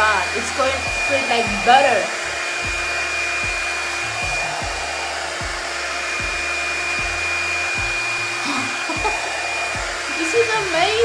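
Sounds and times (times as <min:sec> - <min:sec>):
blow dryer air rushing: 0:00.0 - 0:11.0
high whine: 0:00.0 - 0:11.0.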